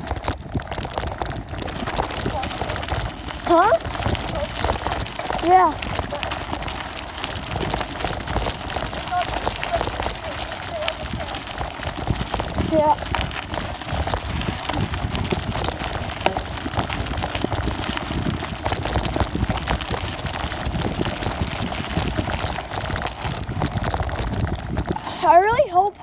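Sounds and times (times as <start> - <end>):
bicycle tyre and wind rumble: 0.0 - 26.0.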